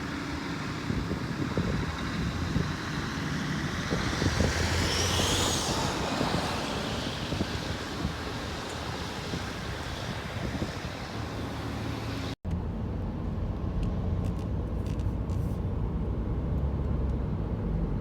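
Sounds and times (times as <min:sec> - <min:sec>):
vehicle engine rumbling: 0:00.0 - 0:18.0
wind noise: 0:00.8 - 0:11.4.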